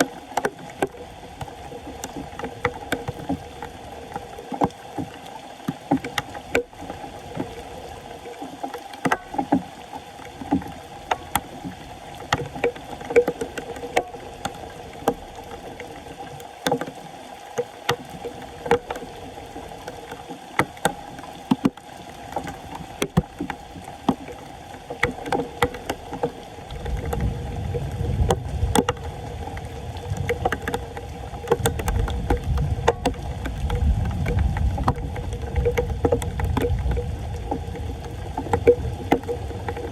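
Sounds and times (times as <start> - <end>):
floodwater sloshing and splashing: 0.0 - 39.9.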